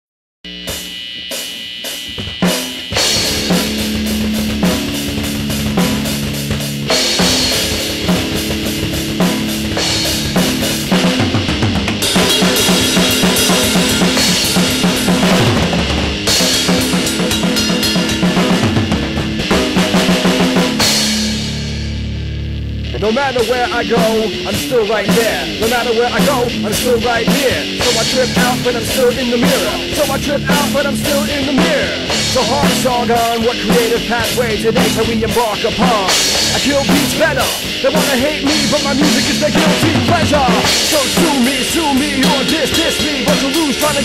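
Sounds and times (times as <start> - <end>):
drum kit beat: 0.4 - 44.0
sustained guitar: 0.5 - 44.0.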